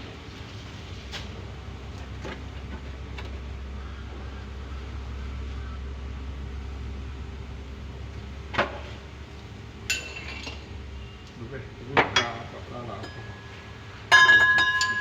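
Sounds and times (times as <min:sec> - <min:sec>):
metal objects clinking: 0:09.9 - 0:10.7, 0:14.1 - 0:15.0
ringing metallic strike: 0:13.0 - 0:15.0.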